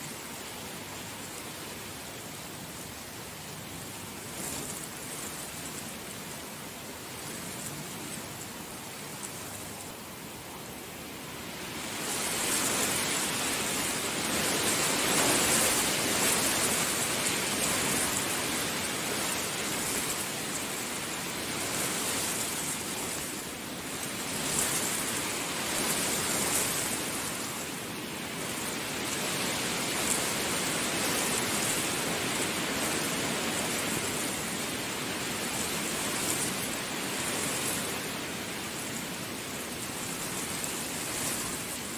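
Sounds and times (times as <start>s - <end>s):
heavy rain hissing: 0.0s - 41.9s.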